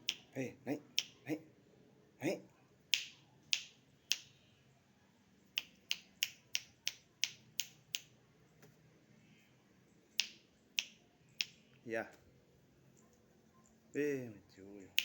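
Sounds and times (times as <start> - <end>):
sharp finger snaps: 0.0 - 1.4, 2.9 - 4.5, 5.5 - 8.1, 10.1 - 11.6.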